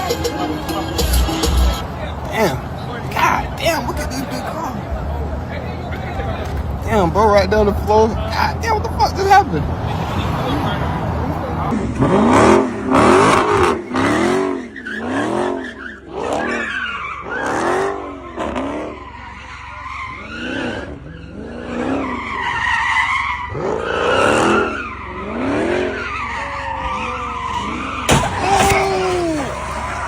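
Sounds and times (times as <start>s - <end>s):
car engine revving: 0.0s - 30.0s
tyres skidding and squealing: 0.0s - 30.0s
sudden loud crack: 28.1s - 30.0s.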